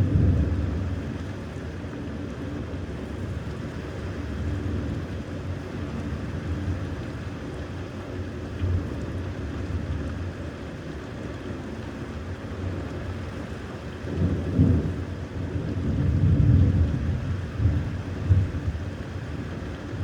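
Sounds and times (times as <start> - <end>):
steady rain: 0.0 - 20.0
wind: 0.0 - 20.0.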